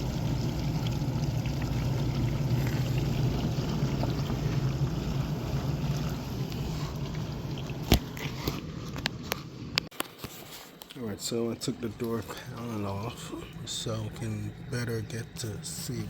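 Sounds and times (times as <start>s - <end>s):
water splashing inside dishwasher: 0.0s - 9.2s
dishwasher pump humming: 0.0s - 9.8s, 11.3s - 16.0s.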